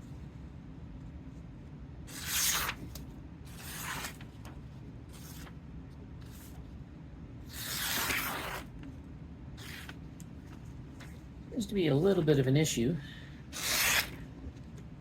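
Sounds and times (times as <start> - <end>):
knife slicing through paper: 2.1 - 2.8, 3.5 - 4.2, 7.5 - 8.7, 13.6 - 14.2.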